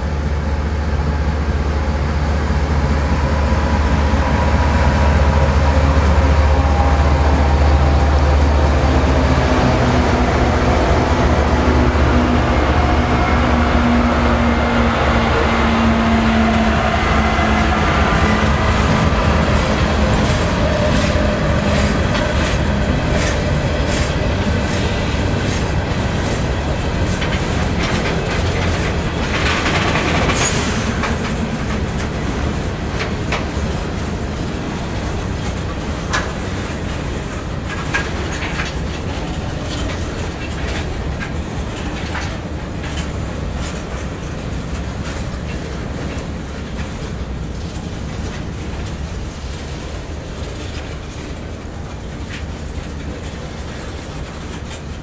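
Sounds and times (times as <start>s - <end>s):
diesel locomotive engines: 0.0s - 55.0s
train wheels clicking over rail joints: 0.2s - 55.0s.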